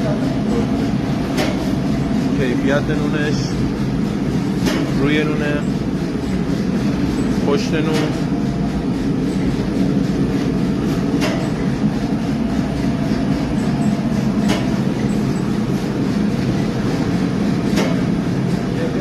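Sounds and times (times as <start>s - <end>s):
machine mechanical drone: 0.0s - 19.0s
sharp click: 11.2s - 11.6s.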